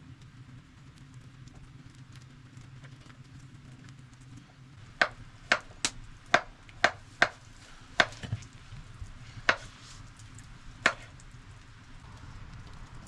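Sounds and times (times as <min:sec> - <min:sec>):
blade chopping wood: 0:05.0 - 0:07.4, 0:08.0 - 0:08.4, 0:09.5 - 0:09.7, 0:10.9 - 0:11.1.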